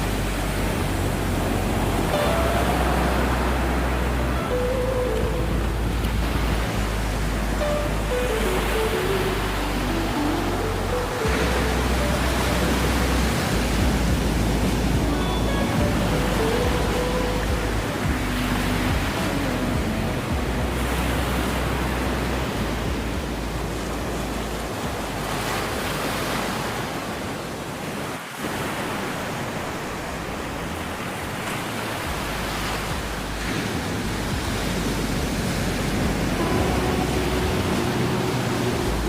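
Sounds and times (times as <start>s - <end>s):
ocean waves breaking on beach: 0.0s - 39.0s.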